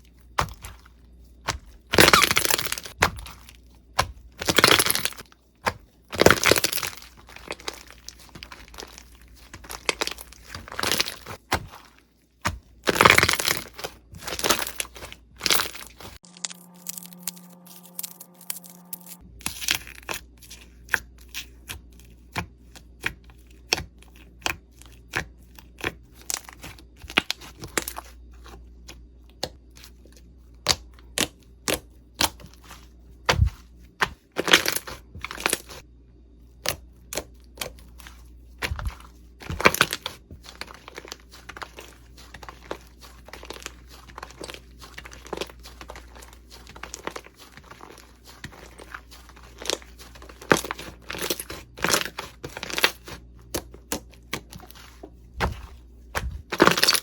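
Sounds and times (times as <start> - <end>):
slime crackling and popping: 1.5 - 5.2, 6.1 - 11.5, 12.8 - 20.2, 38.6 - 55.6, 56.2 - 57.0.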